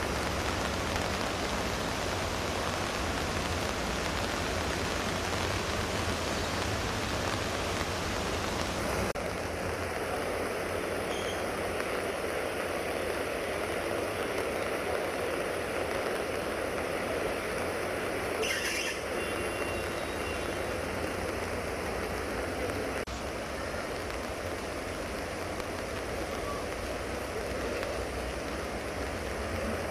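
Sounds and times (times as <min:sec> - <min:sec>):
floodwater rushing: 0:00.0 - 0:29.9
heavy rain: 0:00.0 - 0:29.9.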